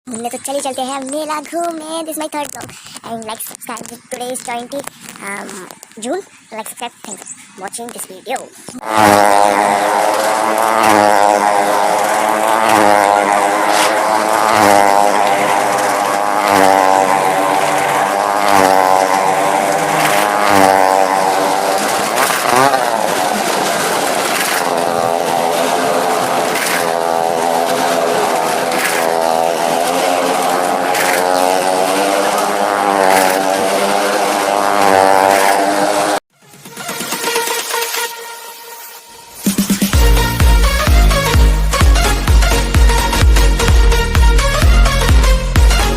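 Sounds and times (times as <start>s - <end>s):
motorcycle and car engines circling: 0.1s - 45.9s.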